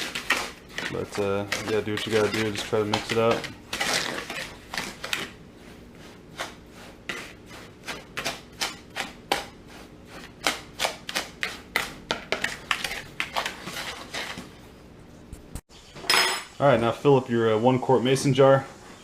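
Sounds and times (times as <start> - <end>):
utensil clinking and scraping bowl: 0.0 - 14.7.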